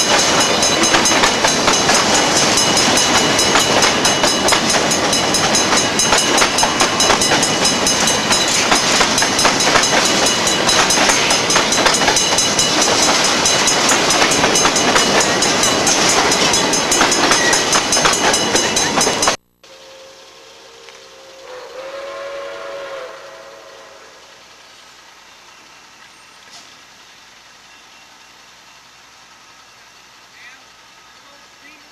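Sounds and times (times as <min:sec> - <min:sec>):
train wheels clattering over rail joints: 0:00.0 - 0:19.4.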